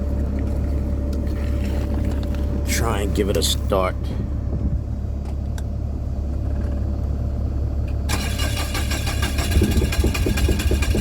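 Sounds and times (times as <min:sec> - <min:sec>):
low engine rumble: 0:00.0 - 0:11.0
generator starter cranking: 0:08.1 - 0:11.0.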